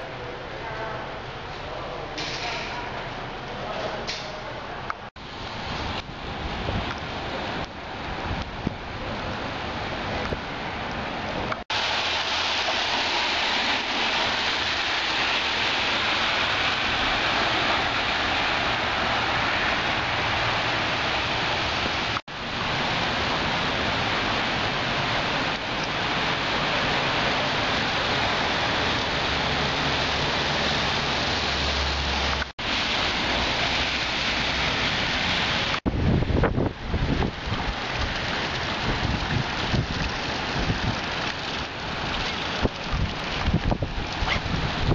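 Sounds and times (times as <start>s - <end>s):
heavy rain: 0.0s - 44.9s
wind: 0.0s - 44.9s.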